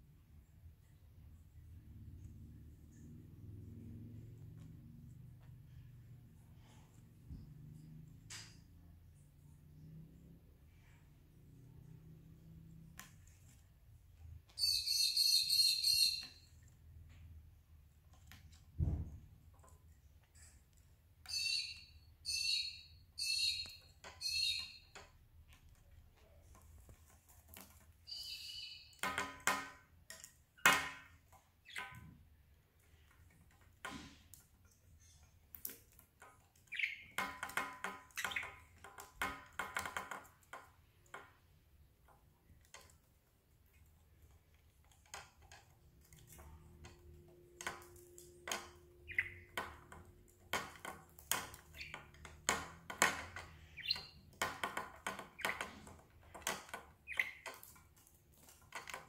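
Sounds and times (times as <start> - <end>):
budgerigar chirping: 14.6 - 16.4, 21.3 - 24.9, 28.1 - 28.9.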